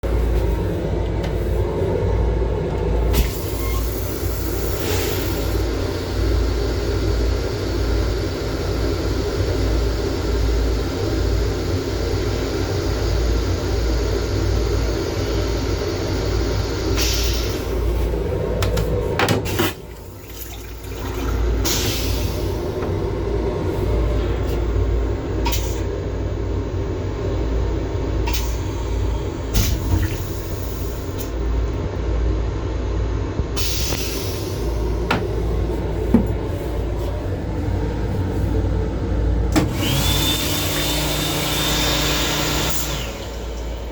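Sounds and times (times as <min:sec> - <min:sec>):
train rumbling: 0:00.0 - 0:14.2, 0:15.5 - 0:40.2
toilet flushing hiss: 0:03.1 - 0:25.9, 0:28.2 - 0:31.5, 0:33.6 - 0:37.1, 0:39.6 - 0:43.9.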